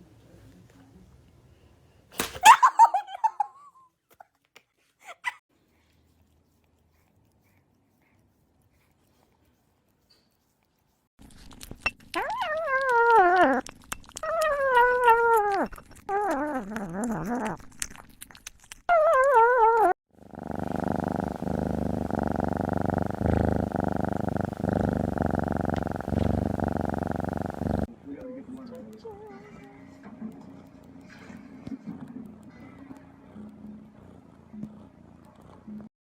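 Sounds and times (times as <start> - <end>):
cat purring: 19.8 - 27.9, 28.6 - 35.9.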